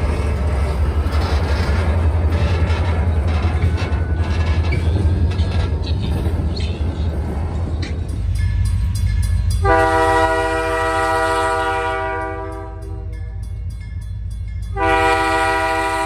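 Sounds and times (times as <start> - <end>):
wheels clicking over rail joints: 0.0 - 9.8.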